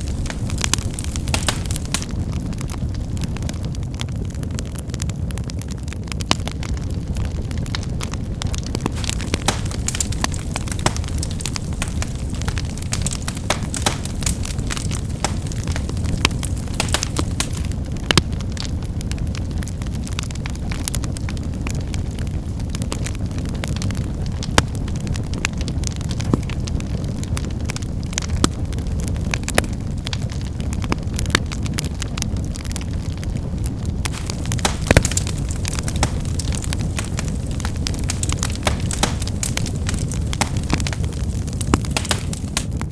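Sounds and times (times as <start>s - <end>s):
firewood snapping: 0.0s - 3.3s, 8.5s - 18.3s, 34.0s - 42.9s
wood fire crackling: 0.0s - 42.9s.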